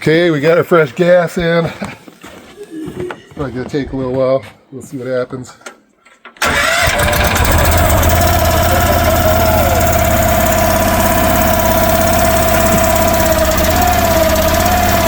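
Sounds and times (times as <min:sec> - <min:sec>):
starter motor cranking engine: 0:06.4 - 0:15.0.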